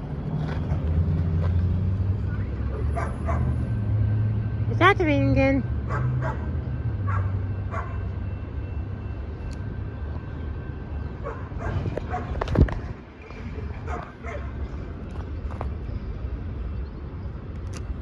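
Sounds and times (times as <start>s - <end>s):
dog barking: 2.9s - 3.5s, 5.9s - 6.5s, 7.1s - 8.0s, 11.2s - 12.4s, 13.9s - 14.5s.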